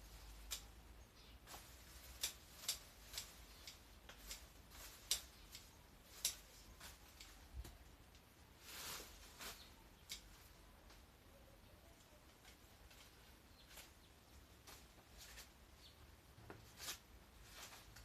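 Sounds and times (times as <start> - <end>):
hand shears snipping stems: 0.1 - 0.8, 1.4 - 7.9, 9.2 - 10.6.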